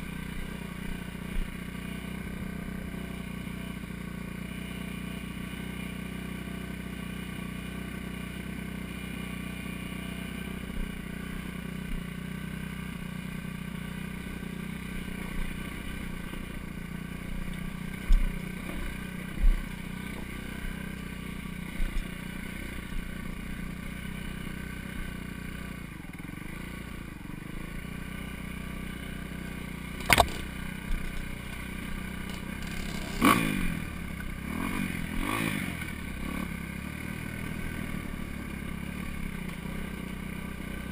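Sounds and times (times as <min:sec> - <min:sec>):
dirt bike engine running: 0:00.0 - 0:40.9
bike bouncing thumps: 0:30.0 - 0:30.5.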